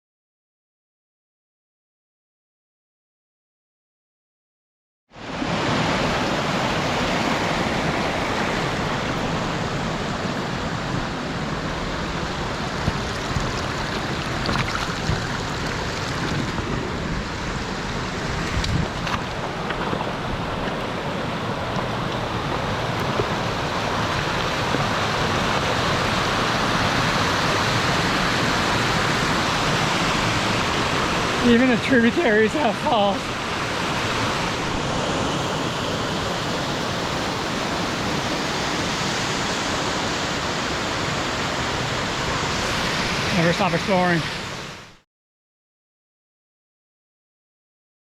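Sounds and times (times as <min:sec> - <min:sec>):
river water rushing over rocks: 0:05.2 - 0:31.8.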